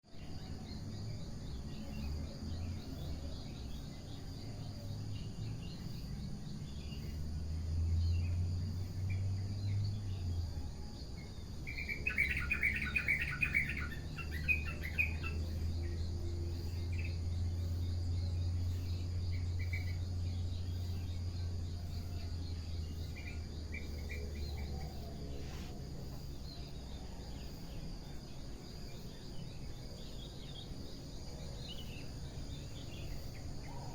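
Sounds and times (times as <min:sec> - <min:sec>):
birds singing: 0:00.0 - 0:33.9
insect trill: 0:00.0 - 0:33.9
bird chirping rapidly: 0:11.7 - 0:15.6.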